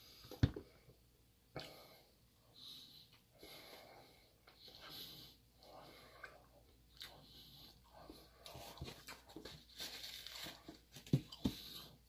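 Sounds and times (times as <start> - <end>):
person chewing cake: 5.6 - 9.4.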